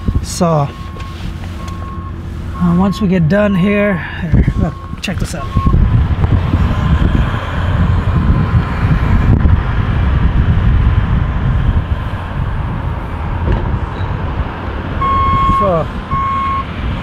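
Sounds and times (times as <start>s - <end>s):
diesel engine running: 0.0s - 17.0s
wind on microphone: 4.3s - 17.0s.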